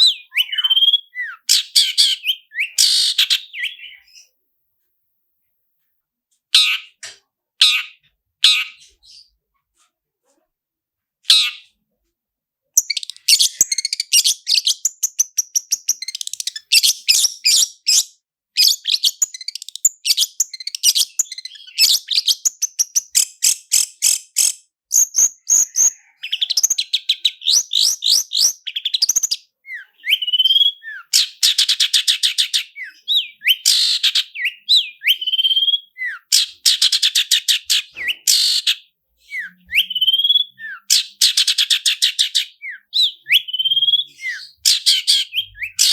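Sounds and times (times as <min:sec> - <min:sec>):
bird chattering trills: 0:00.0 - 0:04.1, 0:18.6 - 0:45.9
short rising bird whistles: 0:29.7 - 0:31.1, 0:39.2 - 0:40.8, 0:42.6 - 0:44.6.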